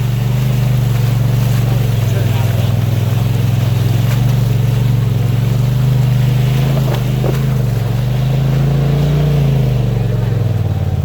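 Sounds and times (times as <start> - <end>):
side-by-side engine running: 0.0 - 11.0.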